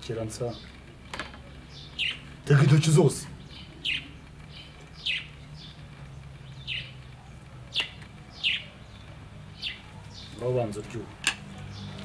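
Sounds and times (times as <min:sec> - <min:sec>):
small bird chirping: 0:01.4 - 0:02.6, 0:03.3 - 0:10.8.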